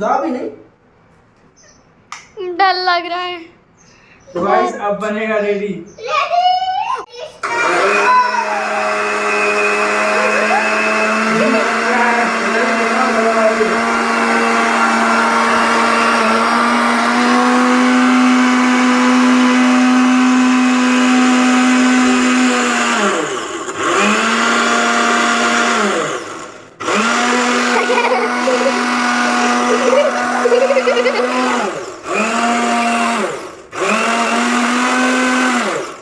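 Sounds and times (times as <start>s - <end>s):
mixer grinder motor whining: 7.4s - 36.0s.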